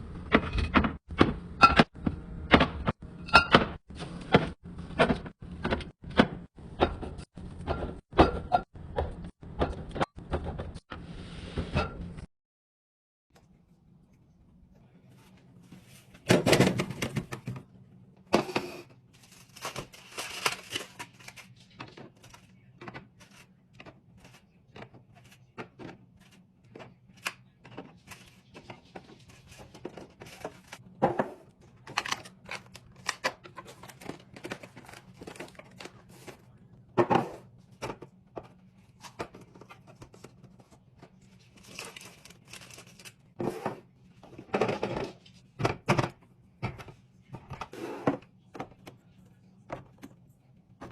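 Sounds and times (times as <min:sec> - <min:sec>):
packaging crinkling or tearing: 0:41.6 - 0:43.2.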